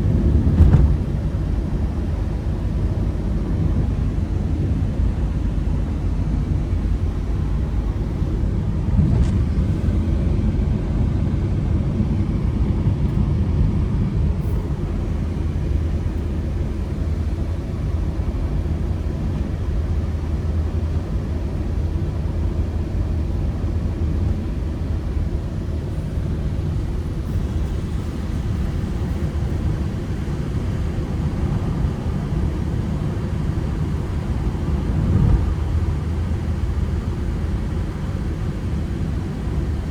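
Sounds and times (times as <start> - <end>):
road rumble: 0.0 - 39.9
van engine droning: 0.0 - 39.9.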